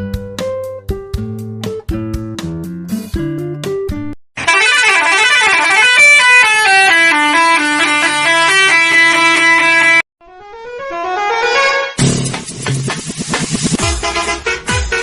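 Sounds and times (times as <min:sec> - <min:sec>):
musical air horn: 0:04.4 - 0:12.2, 0:13.7 - 0:15.0.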